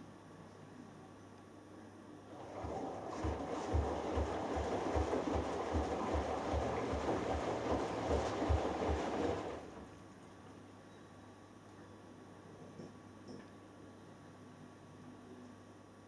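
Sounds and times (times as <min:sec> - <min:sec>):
washing machine drum turning: 0:02.3 - 0:09.9
water and laundry sloshing: 0:02.3 - 0:10.0.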